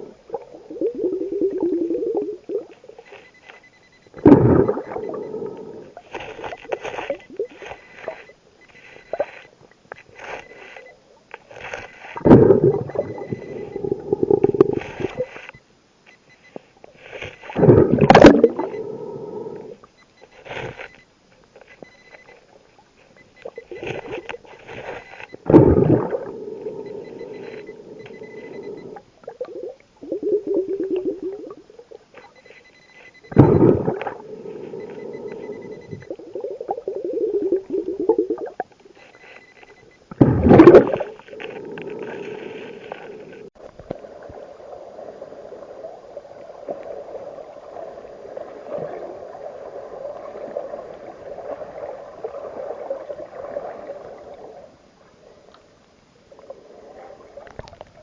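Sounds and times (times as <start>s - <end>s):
soft bubbling hum: 0.0s - 58.0s
diver breathing through regulator: 0.8s - 15.6s, 17.0s - 21.0s, 23.1s - 31.6s, 32.3s - 38.4s, 40.5s - 43.5s
gushes of exhaled bubbles: 4.2s - 5.8s, 12.2s - 15.1s, 17.6s - 18.8s, 25.4s - 26.9s, 33.3s - 34.4s, 40.1s - 42.2s.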